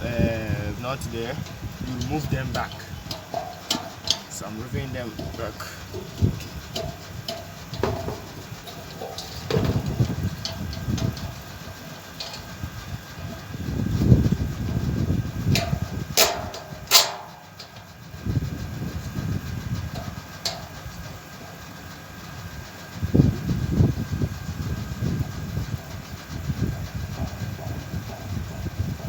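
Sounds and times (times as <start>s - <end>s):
sharp metallic clanks: 0.1s - 18.1s, 19.9s - 21.5s
metal parts being handled: 0.8s - 13.6s, 15.6s - 17.9s.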